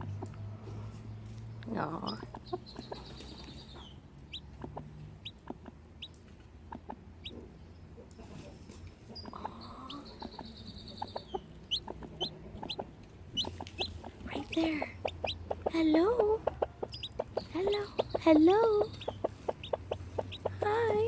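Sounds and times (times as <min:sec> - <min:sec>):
chicks peeping: 0:00.0 - 0:21.0
hen clucking: 0:01.7 - 0:21.0.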